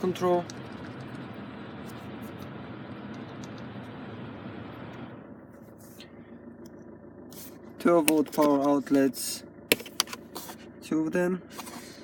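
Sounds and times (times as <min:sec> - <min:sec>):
blower fan hissing: 0:00.0 - 0:06.3
light clicks of controls: 0:02.3 - 0:04.0, 0:07.9 - 0:09.1.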